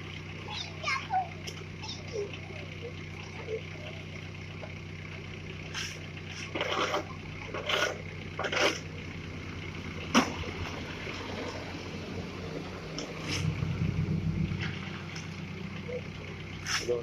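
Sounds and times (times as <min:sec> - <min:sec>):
vehicle engine idling: 0:00.0 - 0:17.0
scraping bursts: 0:05.6 - 0:09.0, 0:13.0 - 0:13.8, 0:16.5 - 0:17.0.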